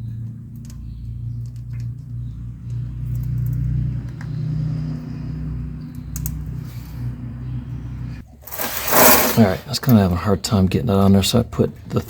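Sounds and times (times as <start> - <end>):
low mechanical hum: 0.0 - 9.7.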